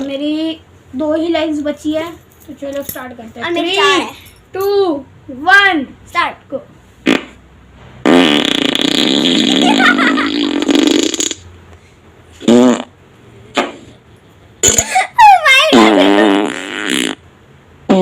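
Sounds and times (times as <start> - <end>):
fart sound effects: 7.0 - 7.4, 8.0 - 11.5, 12.4 - 14.0, 14.6 - 15.0, 15.7 - 17.2.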